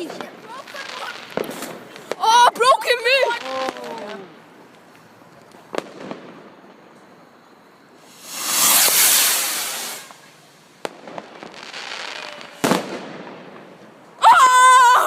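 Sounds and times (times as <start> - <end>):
firework bangs: 0.0 - 4.5, 5.6 - 7.0, 7.9 - 14.0
firework crackling: 0.0 - 14.2
firework hissing rush: 8.0 - 13.0.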